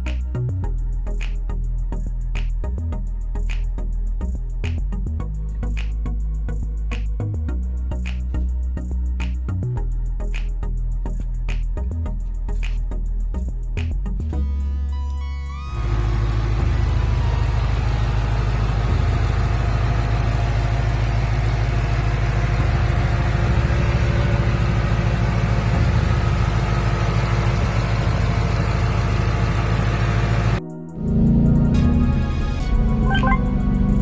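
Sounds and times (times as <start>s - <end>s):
car engine idling: 14.4s - 34.0s.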